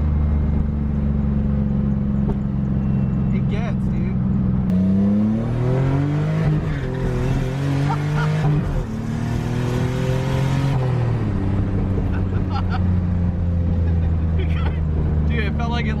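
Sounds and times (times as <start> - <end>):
car engine accelerating hard: 4.2 - 16.0.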